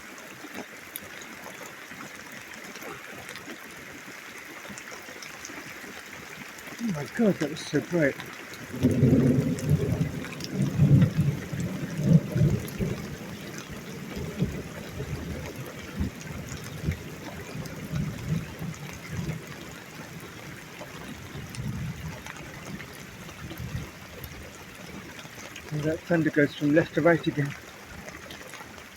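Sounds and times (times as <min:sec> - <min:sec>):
rainwater trickling and dripping: 0:00.0 - 0:28.9
thunder rumbling: 0:06.8 - 0:19.5.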